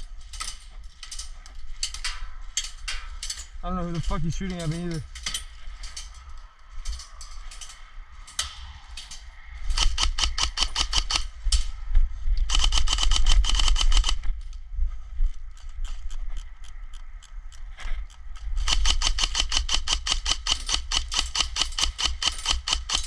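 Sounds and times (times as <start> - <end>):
airsoft gun firing bursts: 9.8 - 11.2, 18.6 - 23.0.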